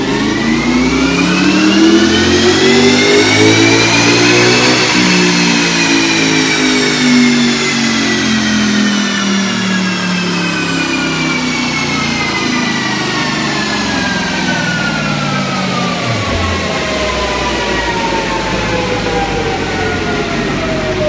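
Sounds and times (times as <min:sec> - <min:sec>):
car engine winding down on dyno: 0:00.0 - 0:21.0
high whine falling in pitch: 0:14.8 - 0:21.0.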